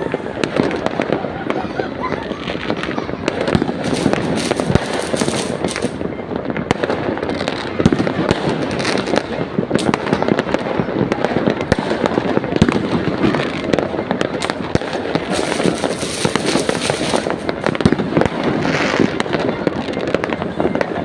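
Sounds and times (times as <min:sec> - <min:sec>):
fireworks and firecrackers crackling: 0:00.0 - 0:21.0.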